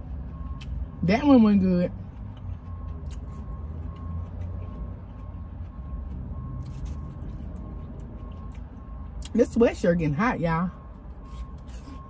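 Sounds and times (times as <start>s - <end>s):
chewing clicks: 1.9s - 9.4s.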